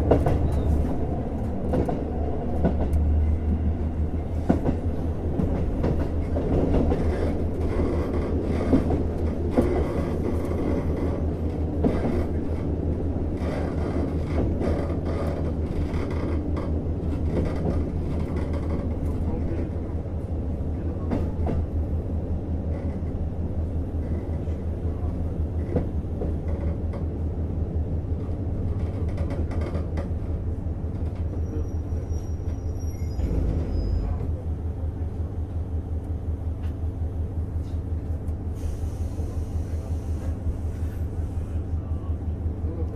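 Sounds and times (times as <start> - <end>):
diesel railcar engine throbbing: 0.0 - 42.9
air hiss: 38.5 - 40.9.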